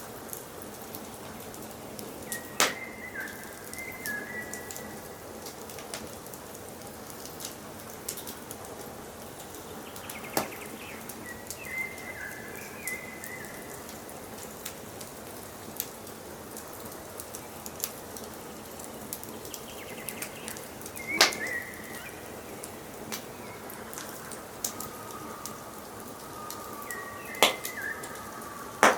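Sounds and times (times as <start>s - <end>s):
wood fire crackling: 0.0s - 28.9s
bird singing: 2.2s - 5.2s, 9.6s - 13.9s, 18.4s - 28.9s.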